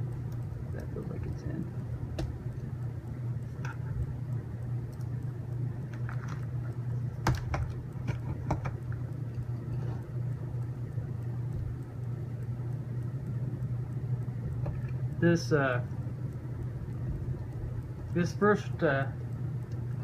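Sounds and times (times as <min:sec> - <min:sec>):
steady low hum: 0:00.0 - 0:20.0
plastic parts clicking and tapping: 0:07.2 - 0:08.8.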